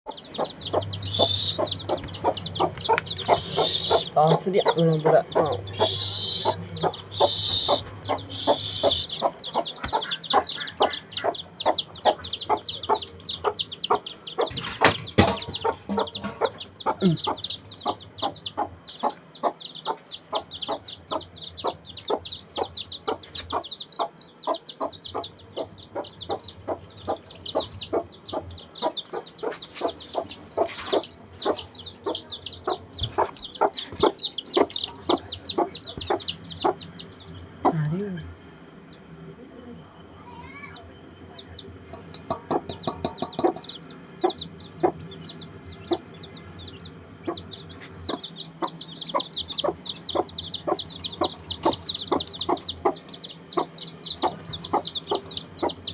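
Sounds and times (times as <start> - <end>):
high-pitched chirps: 0.1 - 4.2, 5.4 - 14.6, 15.3 - 37.0, 47.8 - 55.9
chickens clucking: 0.1 - 38.0, 40.8 - 55.9.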